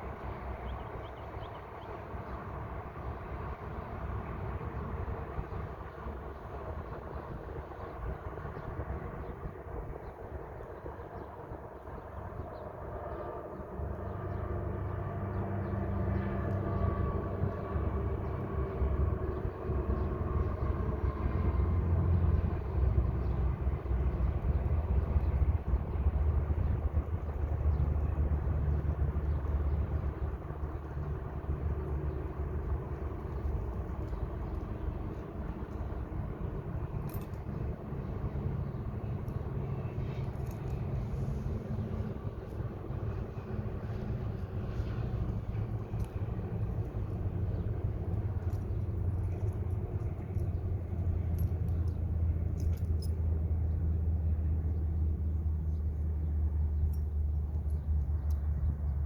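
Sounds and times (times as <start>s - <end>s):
heavy vehicle rumble: 13.0s - 59.0s.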